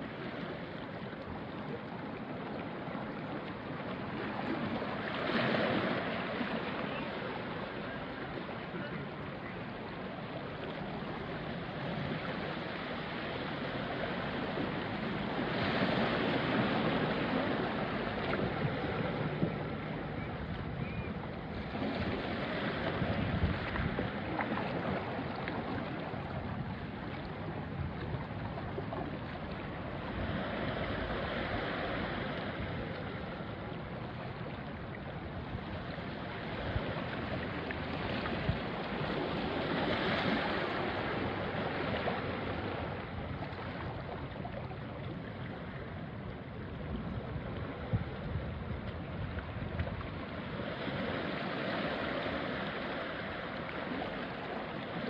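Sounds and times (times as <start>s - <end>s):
sea waves washing on rocky shore: 0.0s - 55.0s
wind on microphone: 10.9s - 34.2s, 35.2s - 54.1s.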